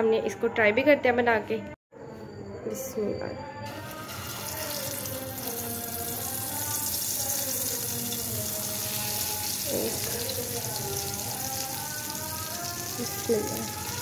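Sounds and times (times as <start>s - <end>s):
patty sizzling in hot oil: 3.7s - 14.0s.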